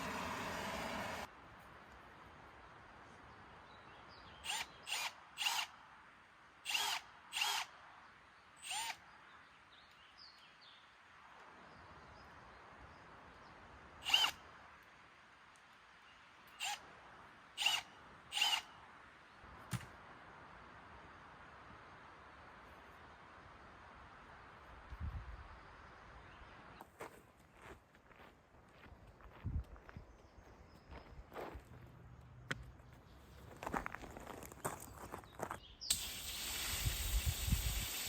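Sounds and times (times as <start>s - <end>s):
power drill bursts: 0.0s - 1.3s, 4.4s - 5.7s, 6.7s - 7.7s, 8.6s - 9.0s, 14.0s - 14.4s, 17.6s - 18.6s, 35.9s - 38.0s.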